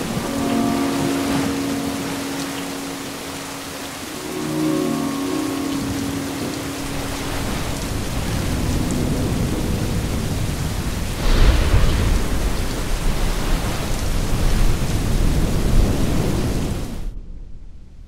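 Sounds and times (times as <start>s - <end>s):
heavy rain: 0.0s - 17.2s
low rumbling thunder: 6.8s - 18.0s
thunderclap: 7.0s - 18.0s.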